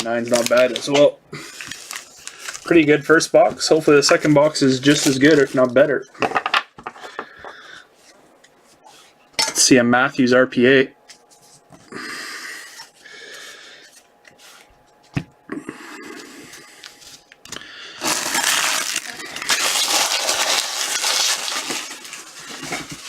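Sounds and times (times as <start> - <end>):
card pack wrappers tearing and crinkling: 0.0 - 2.9, 4.1 - 5.9, 17.5 - 23.0.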